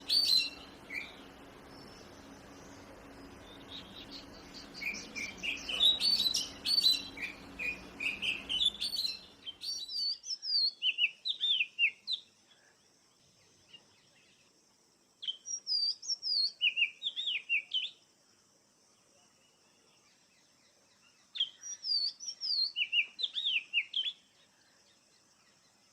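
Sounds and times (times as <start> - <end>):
low hum: 0.0 - 9.6
bird singing whistled notes: 0.0 - 12.3, 15.2 - 18.0, 21.1 - 24.3.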